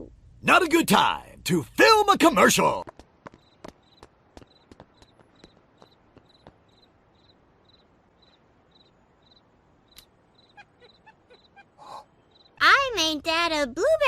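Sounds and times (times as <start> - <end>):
crickets chirping: 3.2 - 12.6.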